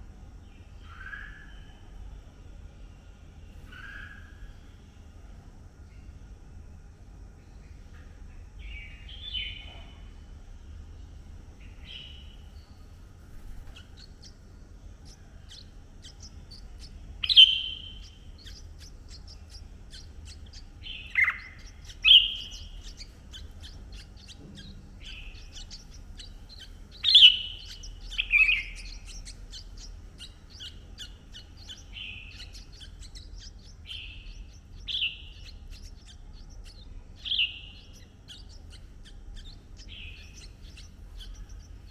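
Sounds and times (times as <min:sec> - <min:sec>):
bird chirps sliding downward: 0:15.0 - 0:41.9.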